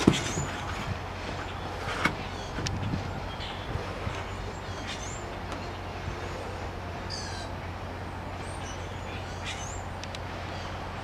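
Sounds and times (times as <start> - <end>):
steady low hum: 0.0 - 11.0
wild birds calling: 0.0 - 11.0.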